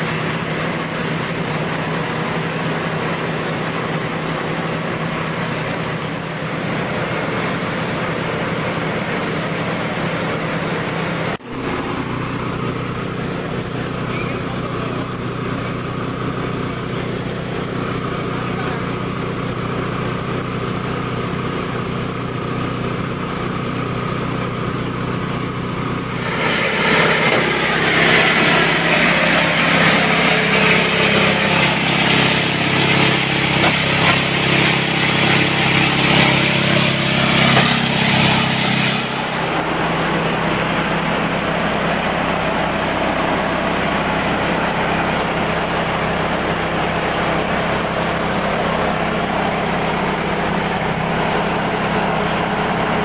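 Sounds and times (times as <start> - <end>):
grass chopper engine running: 0.0 - 53.0
harsh hissing noise: 39.0 - 47.4.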